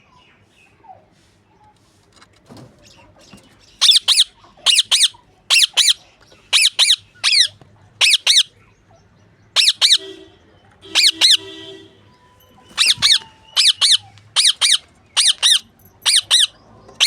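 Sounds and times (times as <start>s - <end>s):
lovebird shrill squawks: 6.6s - 8.5s, 9.6s - 10.2s, 10.8s - 11.7s, 12.6s - 16.5s.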